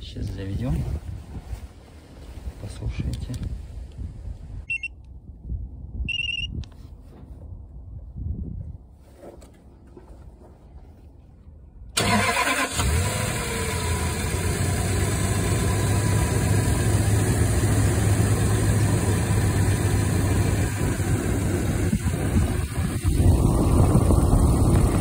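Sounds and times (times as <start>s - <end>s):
engine starting and idling: 12.0s - 25.0s.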